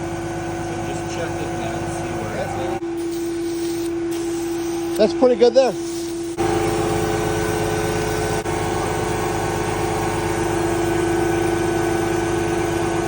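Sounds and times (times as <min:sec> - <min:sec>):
pump truck whine: 0:00.0 - 0:13.0
water pump running: 0:00.0 - 0:13.0
hiss: 0:03.0 - 0:05.0, 0:05.7 - 0:07.0.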